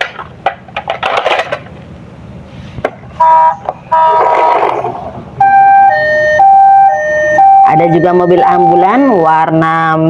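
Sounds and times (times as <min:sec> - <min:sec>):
toy electronic horn tones: 0:03.2 - 0:04.6, 0:05.4 - 0:09.2.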